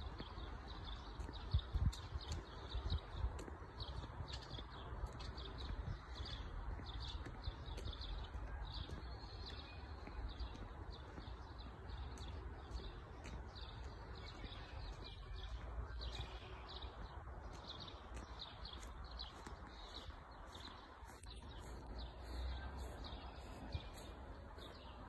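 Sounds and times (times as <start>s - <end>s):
wind rumble on microphone: 0.0s - 9.2s
small birds chirping: 0.0s - 25.0s.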